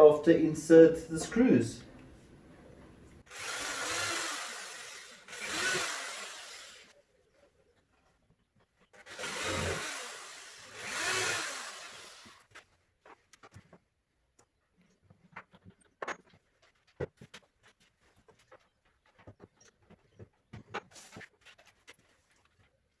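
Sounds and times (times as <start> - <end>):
power drill boring into wood: 3.2 - 6.9, 9.0 - 12.4.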